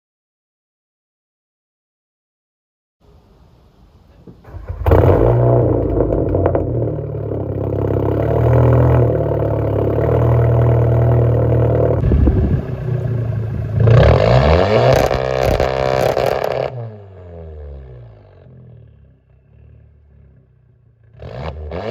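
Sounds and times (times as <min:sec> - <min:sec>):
car engine starting: 0:04.3 - 0:21.9
car engine revving: 0:04.5 - 0:21.9
car engine idling loudly: 0:05.8 - 0:14.6.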